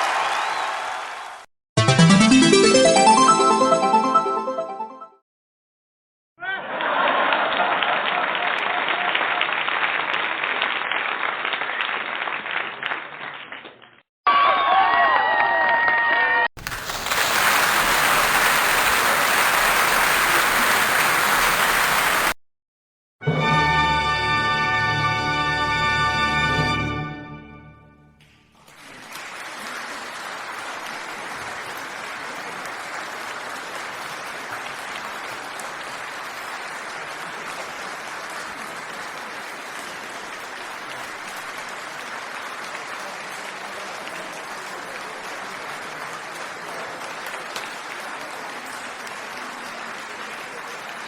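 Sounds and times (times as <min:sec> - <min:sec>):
audience applause: 0:00.0 - 0:04.9, 0:06.7 - 0:13.7, 0:14.3 - 0:22.4, 0:28.6 - 0:51.0
music note: 0:01.8 - 0:05.2.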